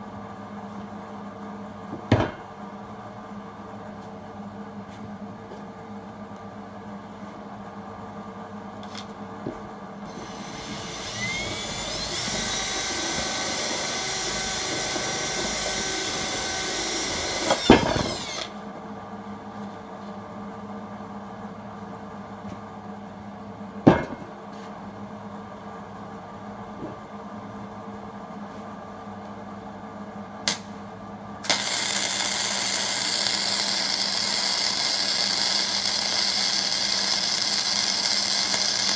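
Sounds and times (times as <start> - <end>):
welder arc crackling and hissing: 10.0 - 18.6, 30.5 - 30.8, 31.4 - 38.9
power tool motor whining: 10.1 - 18.6, 31.5 - 38.9
metal knocks: 23.9 - 24.3.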